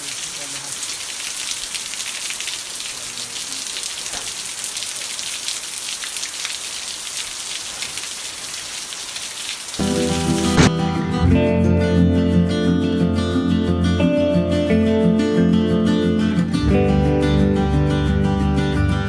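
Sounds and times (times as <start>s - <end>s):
steady rain with drop ticks: 0.0s - 10.4s.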